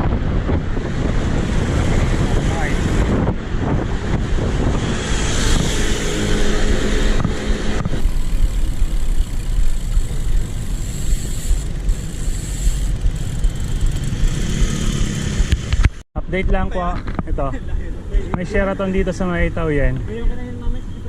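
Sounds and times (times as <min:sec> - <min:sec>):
wind buffeting microphone: 0:00.0 - 0:10.6
vehicle engine passing: 0:00.8 - 0:15.8.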